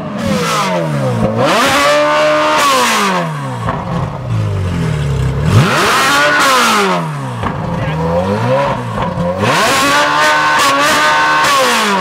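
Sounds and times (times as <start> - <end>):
supercar engine revving: 0.0 - 12.0.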